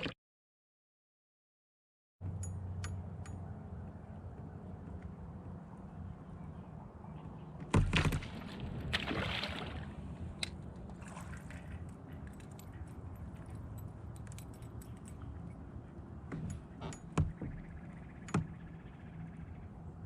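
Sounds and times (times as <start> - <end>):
water splashing and sloshing: 7.5 - 19.5
fishing gear clicks and rattles: 10.3 - 17.7.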